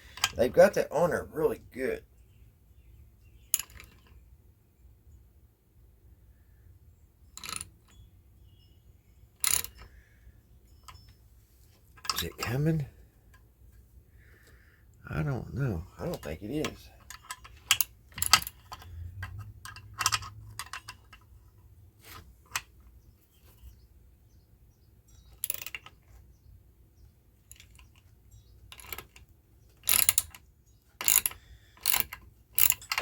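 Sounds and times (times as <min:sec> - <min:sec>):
metal tool clicks and clinks: 0:03.5 - 0:04.0, 0:07.4 - 0:08.0, 0:09.4 - 0:09.9, 0:12.0 - 0:12.6, 0:16.1 - 0:21.3, 0:29.8 - 0:30.4, 0:31.0 - 0:33.0.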